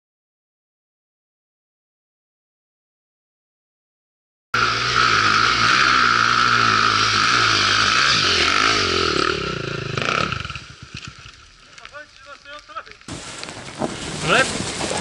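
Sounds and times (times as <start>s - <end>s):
motorcycle engine revving: 4.6s - 11.4s.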